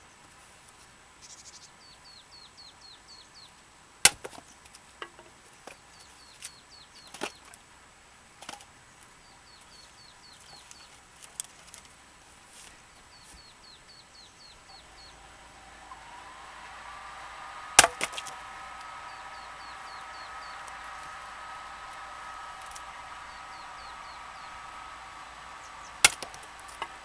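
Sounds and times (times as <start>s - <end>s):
small bird chirping: 1.2s - 3.6s, 12.9s - 27.0s
axe splitting firewood: 4.1s - 4.5s, 14.8s - 23.5s, 24.2s - 27.0s
faint rising hum: 14.2s - 27.0s.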